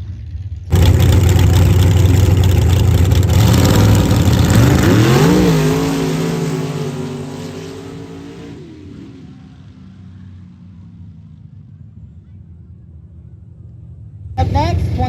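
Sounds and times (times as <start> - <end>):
racing engine at full throttle: 0.7 - 10.9.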